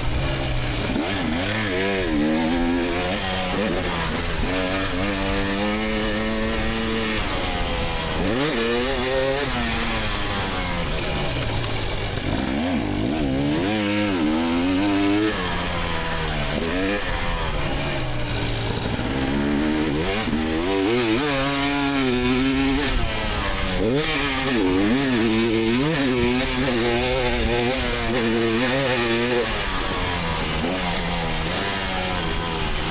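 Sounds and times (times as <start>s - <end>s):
dirt bike engine revving: 0.0s - 32.9s.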